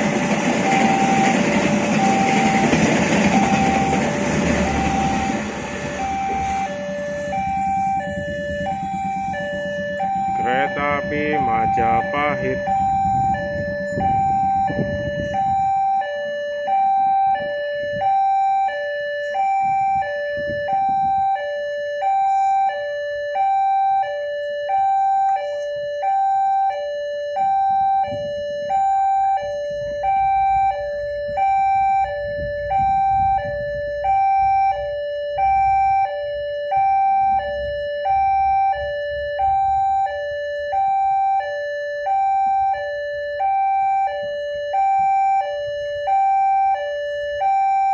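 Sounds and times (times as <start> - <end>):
low rumble: 0.0 - 15.6
two-tone crossing alarm: 0.0 - 47.9.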